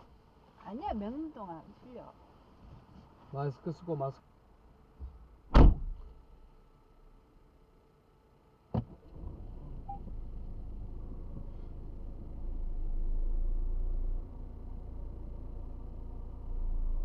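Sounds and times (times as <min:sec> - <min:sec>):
car engine and road rumble: 0:00.0 - 0:17.0
car door shutting: 0:05.0 - 0:06.1, 0:08.7 - 0:09.3.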